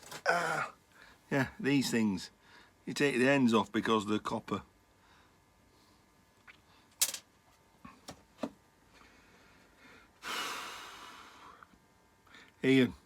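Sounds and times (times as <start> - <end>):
man exhaling: 10.2 - 11.6.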